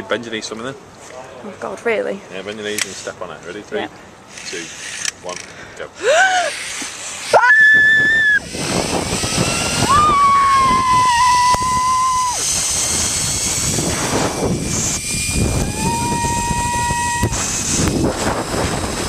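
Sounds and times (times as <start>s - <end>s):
zip-wire trolley running on cable: 6.2s - 19.0s
high whining tones: 6.4s - 19.0s
high-pitched scream: 7.3s - 12.7s, 14.9s - 17.8s
wind rushing over microphone: 7.4s - 19.0s.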